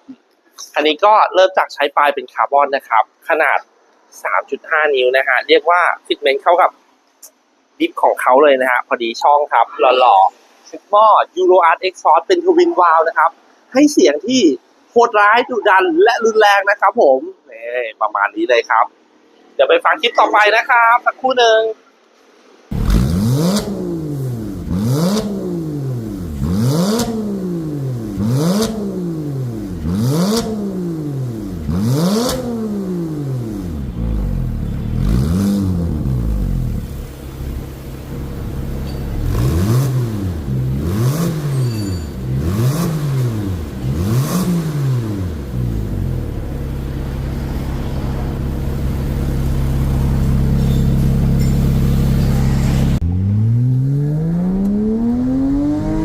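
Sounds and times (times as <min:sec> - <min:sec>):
car engine revving: 0:22.7 - 0:56.0.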